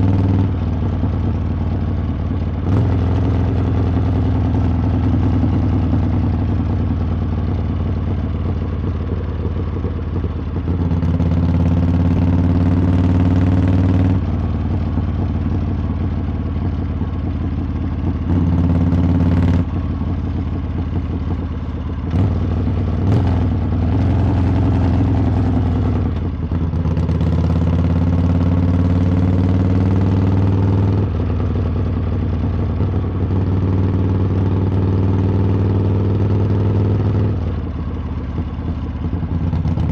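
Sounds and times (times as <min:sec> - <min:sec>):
motorcycle exhaust: 0:00.0 - 0:39.9.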